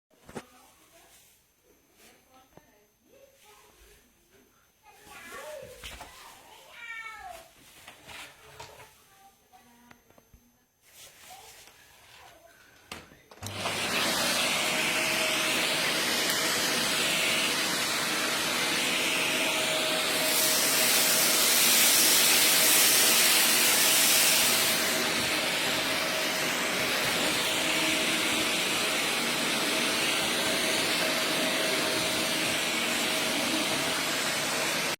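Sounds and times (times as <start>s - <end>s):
vacuum cleaner running: 13.3s - 34.9s.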